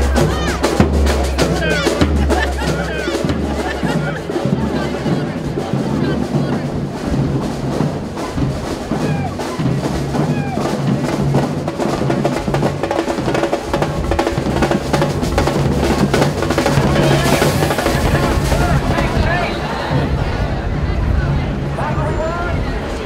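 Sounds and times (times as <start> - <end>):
bass drum: 0.0 - 20.4
snare drum rolls and rimshots: 0.0 - 20.4.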